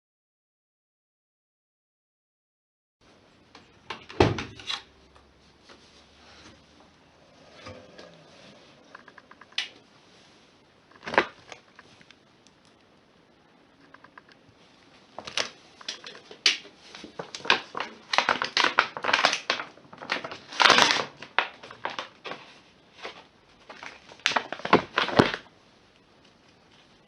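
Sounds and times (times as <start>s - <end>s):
rustling crinkling handling noises: 3.1s - 13.0s, 13.8s - 27.0s.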